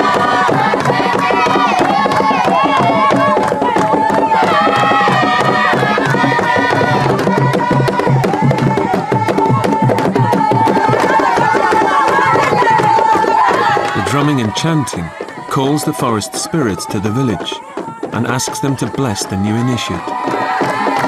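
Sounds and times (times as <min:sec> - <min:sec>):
fast drumming: 0:00.0 - 0:21.0
group of voices chanting: 0:00.0 - 0:21.0.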